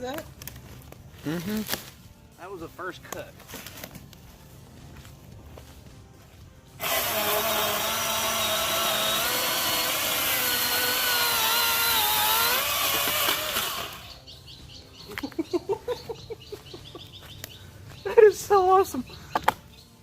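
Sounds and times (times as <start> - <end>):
electric chainsaw cutting wood: 6.8 - 14.2.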